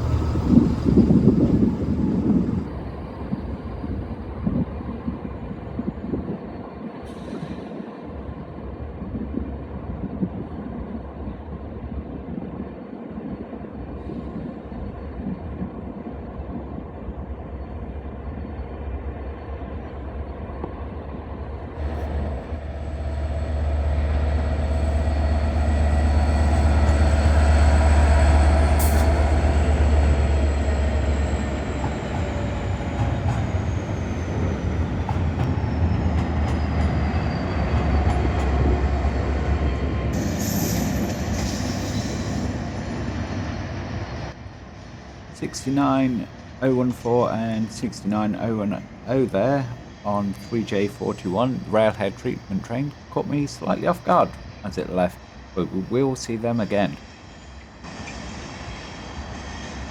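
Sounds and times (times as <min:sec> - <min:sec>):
diesel locomotive engine rumble: 0:00.0 - 0:59.9
faint high whine: 0:45.4 - 0:58.2.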